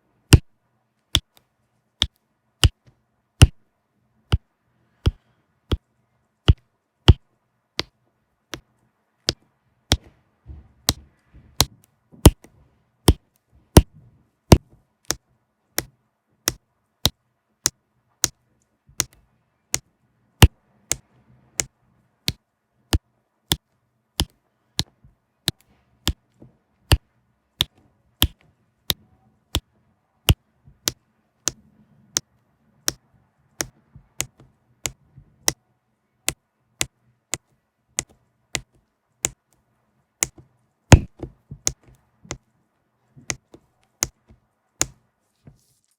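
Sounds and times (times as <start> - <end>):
sharp taps: 40.2 - 42.4.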